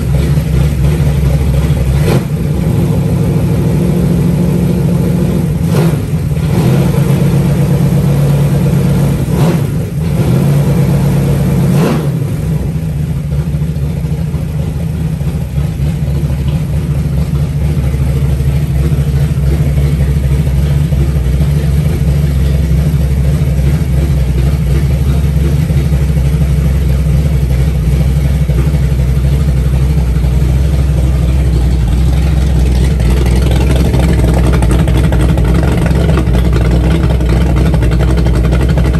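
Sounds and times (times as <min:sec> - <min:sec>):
engine idling: 0:00.0 - 0:38.9.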